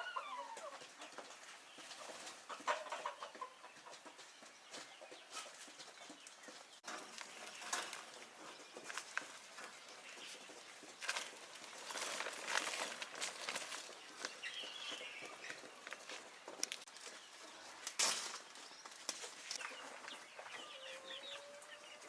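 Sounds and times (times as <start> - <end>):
chick peep: 0.0 - 6.7, 19.6 - 22.0
chicks pecking grain: 0.0 - 22.0.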